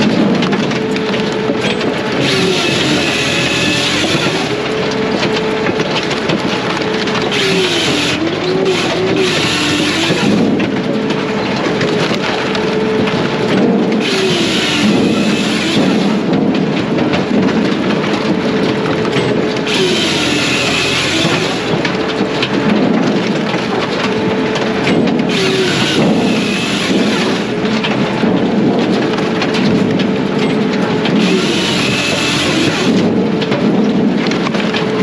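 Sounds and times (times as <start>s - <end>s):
diesel engine running under load: 0.0s - 35.0s
saw cutting through log: 0.8s - 16.3s, 19.5s - 22.7s, 23.6s - 28.1s, 31.0s - 33.2s.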